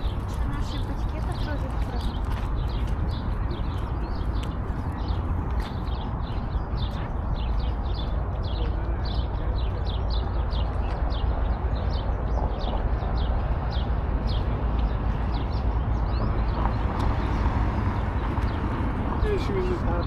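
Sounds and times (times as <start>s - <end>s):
steady low rumble: 0.0s - 19.9s
birds chirping: 0.0s - 20.0s.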